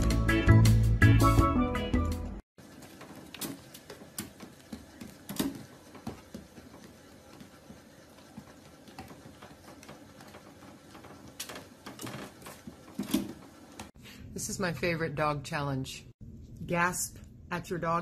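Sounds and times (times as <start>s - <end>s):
treadmill whirring: 2.6s - 14.0s.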